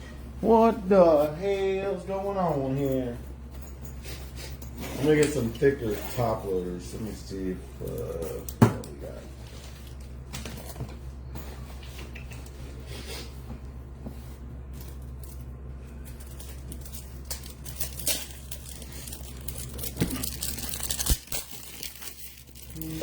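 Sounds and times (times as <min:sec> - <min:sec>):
plastic packaging crinkling: 0:16.2 - 0:23.0.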